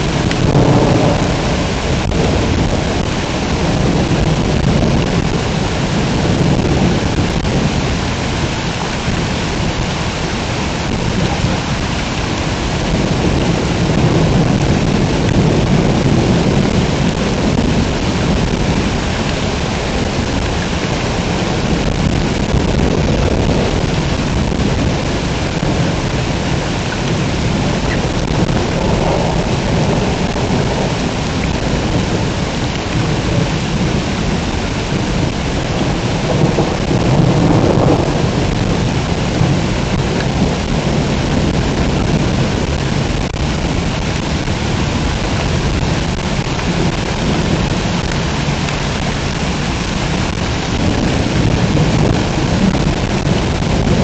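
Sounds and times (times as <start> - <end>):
heavy rain pouring: 0.0 - 54.0
thunder rumbling: 0.0 - 54.0.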